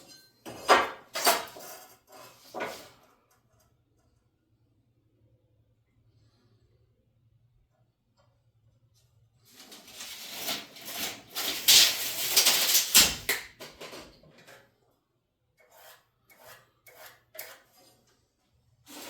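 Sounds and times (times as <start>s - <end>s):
scraping on wood: 15.6s - 18.2s.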